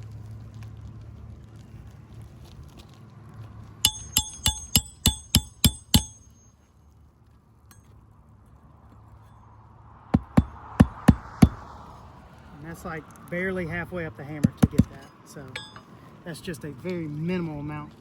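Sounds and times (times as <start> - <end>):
hammer striking nail: 3.9 - 6.4, 10.2 - 11.6, 14.4 - 15.0.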